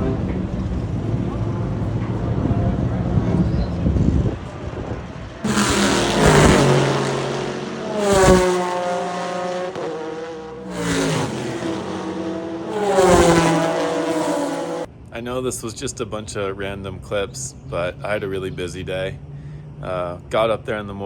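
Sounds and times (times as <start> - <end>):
race cars passing at speed: 0.0 - 14.9.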